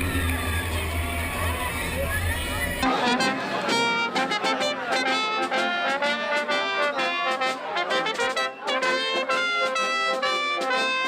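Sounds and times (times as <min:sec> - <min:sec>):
brass band playing: 0:02.8 - 0:11.0.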